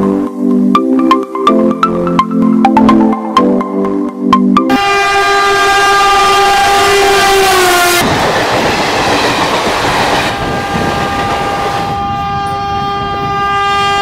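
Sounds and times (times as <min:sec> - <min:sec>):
locomotive horn: 0:04.7 - 0:08.1, 0:10.0 - 0:14.0
train passing at speed: 0:04.8 - 0:14.0.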